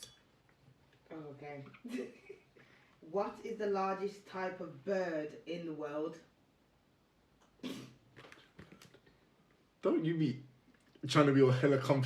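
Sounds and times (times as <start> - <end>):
faint clicks and scratches: 8.2 - 9.6.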